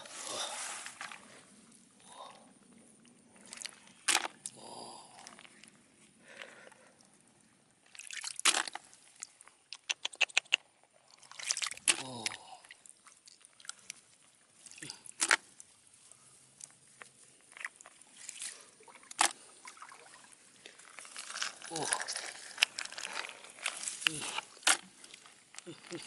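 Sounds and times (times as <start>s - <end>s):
water sloshing: 11.0s - 15.8s, 16.6s - 26.0s.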